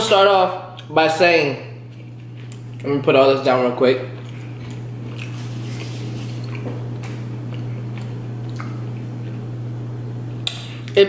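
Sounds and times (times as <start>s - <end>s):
low hum: 0.6s - 11.0s
chewing and swallowing: 1.8s - 2.9s, 4.0s - 9.5s.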